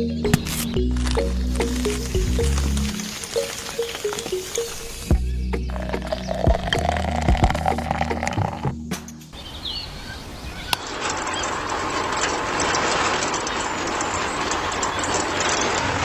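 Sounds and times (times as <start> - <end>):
bird chirp: 0.0 - 8.6, 9.2 - 11.6
background music: 0.0 - 9.3
rushing outdoor noise: 0.0 - 16.0.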